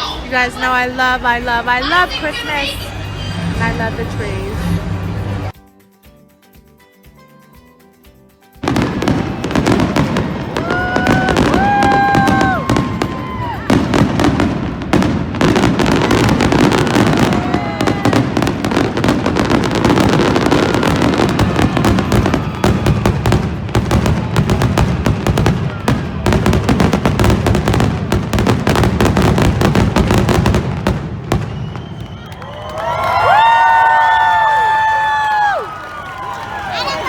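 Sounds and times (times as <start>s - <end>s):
fireworks bangs and crackles: 8.6s - 37.0s
person cheering: 10.5s - 14.0s, 16.0s - 23.3s, 32.2s - 37.0s.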